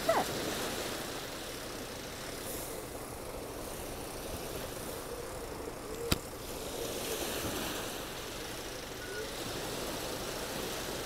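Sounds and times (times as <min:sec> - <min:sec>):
tractor engine running: 0:00.0 - 0:11.0
wind: 0:00.0 - 0:11.0.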